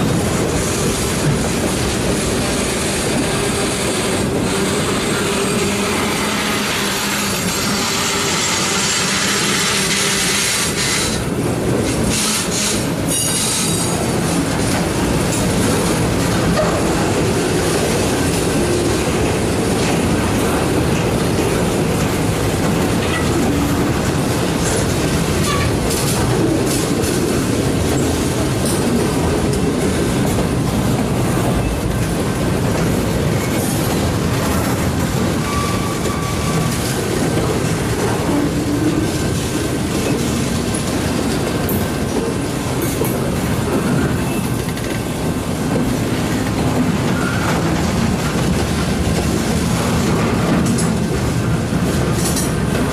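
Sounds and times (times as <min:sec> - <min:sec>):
steel wheels rumbling on rail: 0:00.0 - 0:52.9
wheels clicking over rail joints: 0:11.4 - 0:52.9
high wheel squeal: 0:35.4 - 0:37.0.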